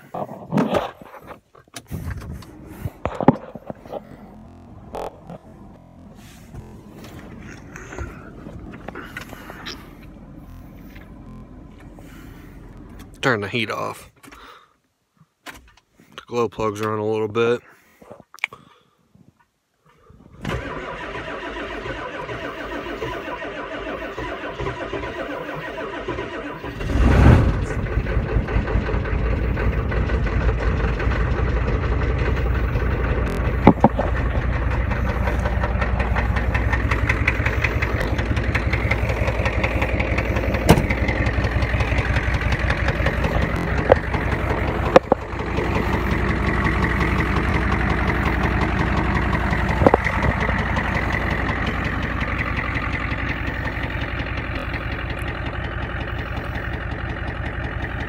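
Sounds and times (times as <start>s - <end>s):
diesel truck engine idling: 1.8s - 13.8s, 20.6s - 58.0s
engine starter cranking: 20.4s - 58.0s.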